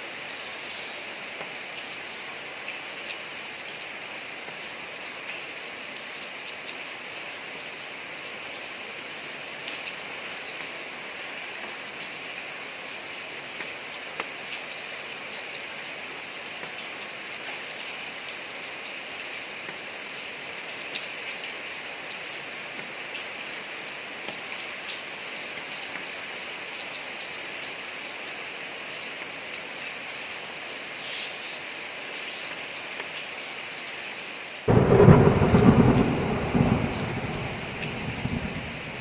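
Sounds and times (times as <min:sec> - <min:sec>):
steady rain on a street: 0:00.0 - 0:39.0
thunder clap and rumble: 0:34.7 - 0:39.0.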